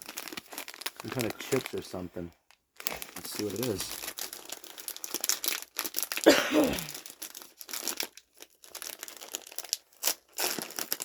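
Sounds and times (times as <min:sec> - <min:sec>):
chip bag crinkling: 0:00.0 - 0:11.0
bag tearing: 0:02.8 - 0:11.0.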